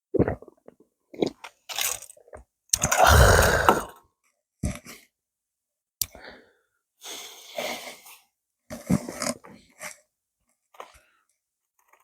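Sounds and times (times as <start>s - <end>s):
person chewing: 2.8s - 4.0s
breathy exhales: 3.0s - 3.9s.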